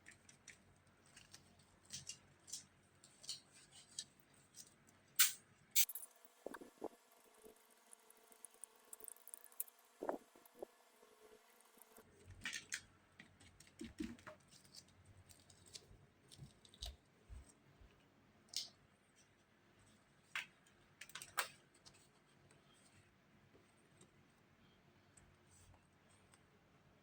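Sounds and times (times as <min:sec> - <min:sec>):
objects being handled clicking: 0:00.0 - 0:10.7.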